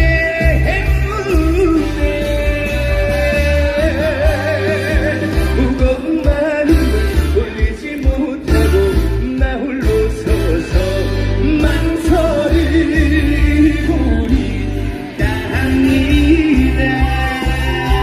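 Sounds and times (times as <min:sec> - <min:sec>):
backing track with pulsing bass: 0:00.0 - 0:18.0
man singing: 0:00.0 - 0:18.0.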